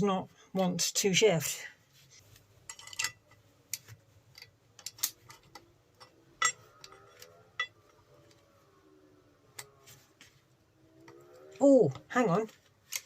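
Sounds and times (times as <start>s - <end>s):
hand tools clicking and knocking: 2.7s - 8.5s.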